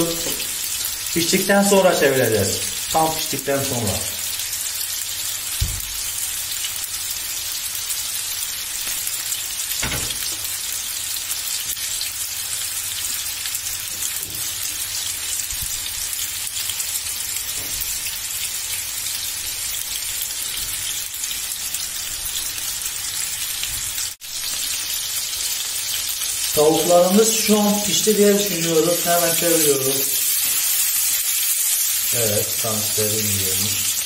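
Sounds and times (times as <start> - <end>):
food sizzling in hot oil: 0.0 - 34.0.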